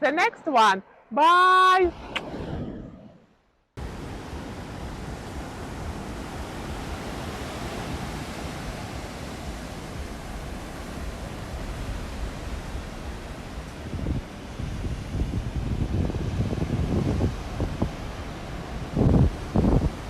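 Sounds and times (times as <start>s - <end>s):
ocean surf: 3.8s - 20.0s
wind buffeting microphone: 3.8s - 20.0s.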